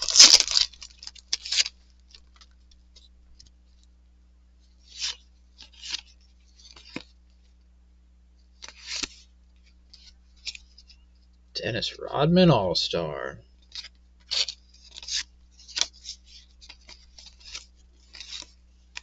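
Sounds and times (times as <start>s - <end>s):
faint steady hum: 0.0s - 19.0s
cards sliding and rubbing: 8.6s - 9.3s, 14.3s - 18.6s.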